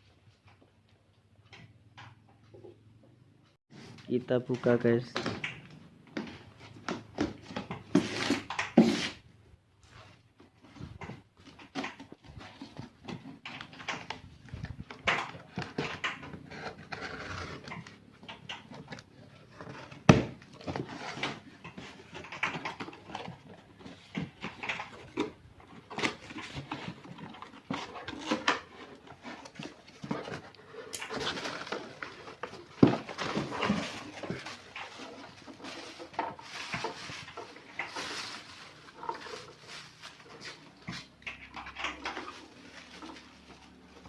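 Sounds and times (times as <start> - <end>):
cardboard packaging rustling: 14.0 - 44.0.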